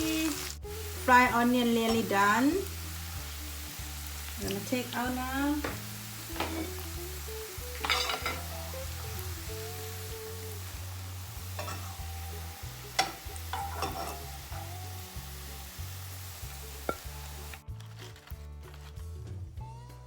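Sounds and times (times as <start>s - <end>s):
food sizzling in hot oil: 0.0s - 17.6s
utensil clinking against pan: 7.8s - 8.4s, 11.6s - 12.0s, 13.0s - 14.4s.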